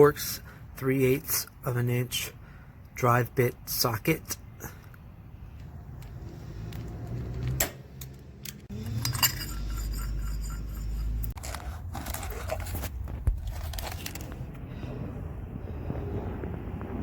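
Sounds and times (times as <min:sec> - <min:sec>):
metal hand tools clinking: 0:08.7 - 0:11.2.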